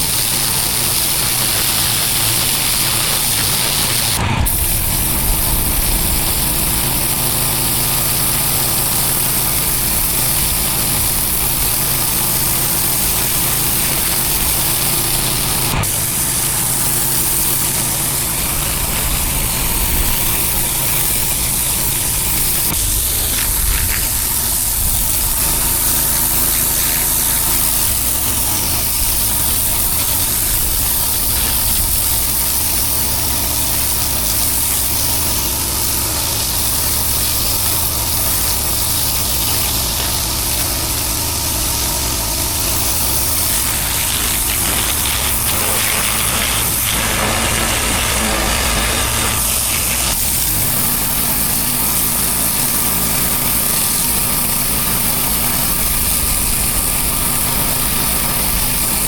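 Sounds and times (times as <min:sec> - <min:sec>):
pressure washer engine running: 0:00.0 - 0:59.0
water spraying hiss: 0:00.0 - 0:59.0.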